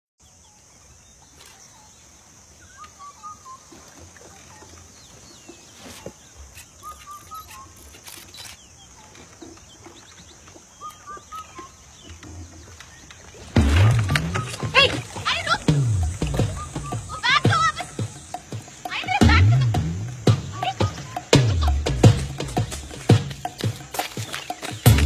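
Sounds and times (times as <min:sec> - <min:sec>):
bird call of quick notes: 0:05.7 - 0:09.2, 0:10.8 - 0:12.4, 0:13.4 - 0:25.0
steady high hiss: 0:13.2 - 0:25.0.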